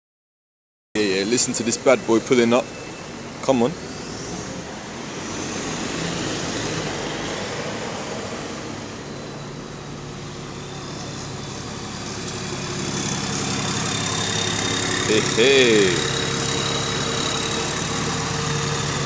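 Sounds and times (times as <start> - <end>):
diesel bus engine: 1.0 - 19.0
turbocharger whining: 7.9 - 19.0.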